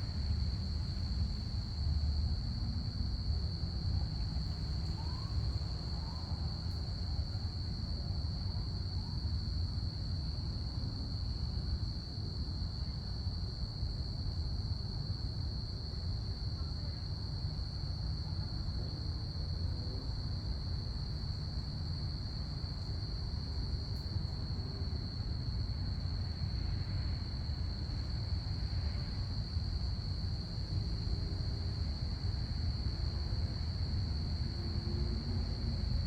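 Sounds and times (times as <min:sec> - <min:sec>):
crickets chirping: 0:00.0 - 0:36.0.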